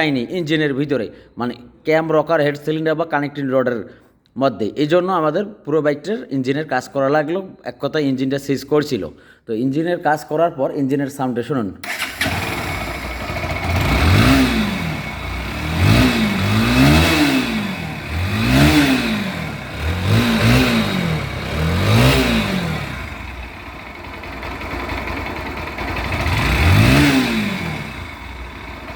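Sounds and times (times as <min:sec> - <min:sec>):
motorcycle engine revving: 0:11.8 - 0:28.9.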